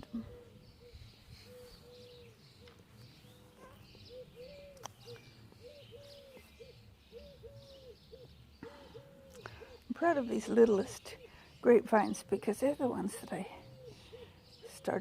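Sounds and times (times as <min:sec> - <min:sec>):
dove cooing: 0:00.0 - 0:02.7, 0:03.3 - 0:09.9, 0:13.2 - 0:14.9
small birds chirping: 0:00.0 - 0:15.0.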